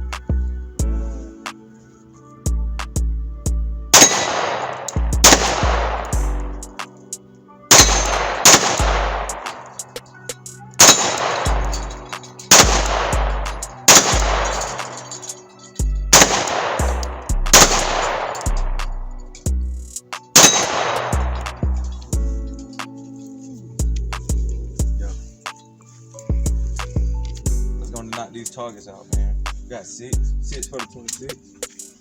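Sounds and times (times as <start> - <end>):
music with deep bass: 0.0 - 1.5, 2.5 - 6.8, 7.7 - 15.1, 15.8 - 25.6, 26.2 - 28.3, 29.2 - 30.9
gunshots with long echo: 4.0 - 6.8, 7.7 - 10.1, 10.8 - 15.4, 16.1 - 19.0, 20.3 - 22.0.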